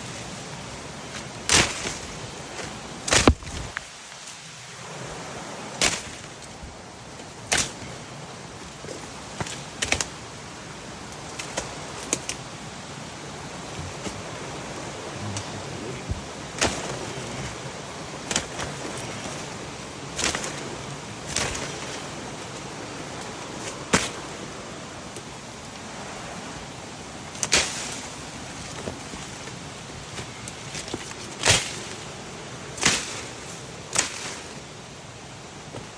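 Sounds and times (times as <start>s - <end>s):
river water rushing: 0.0s - 35.8s
sharp snaps and knocks: 3.1s - 3.9s, 7.5s - 7.9s, 9.3s - 10.2s.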